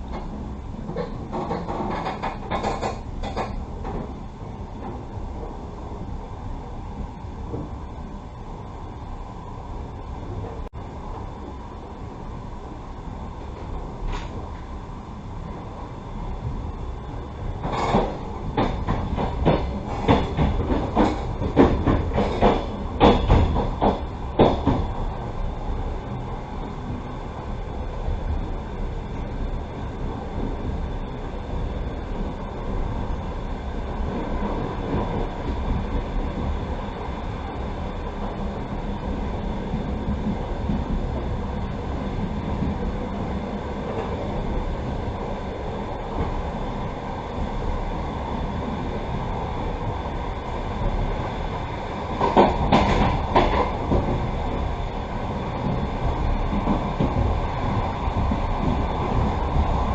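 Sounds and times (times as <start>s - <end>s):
train clattering knocks: 0.0s - 4.2s, 17.6s - 25.3s, 52.1s - 54.6s
train wheels rumbling on rails: 0.0s - 59.9s.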